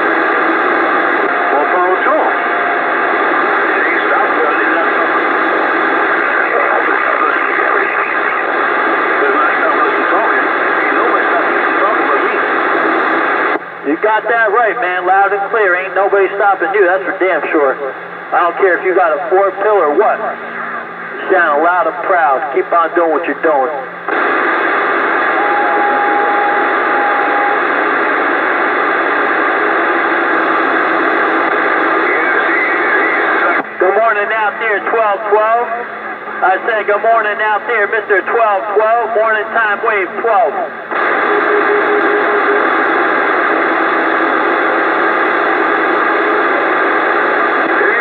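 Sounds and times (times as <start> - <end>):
radio static hiss: 0.0 - 48.0.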